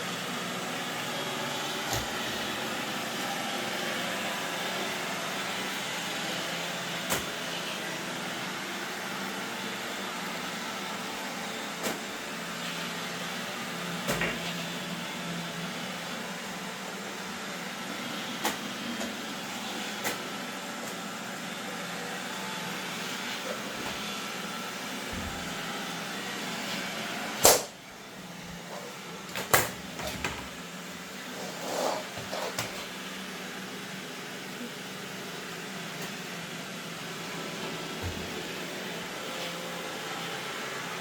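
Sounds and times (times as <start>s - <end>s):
robot vacuum motor hum: 22.2s - 26.8s.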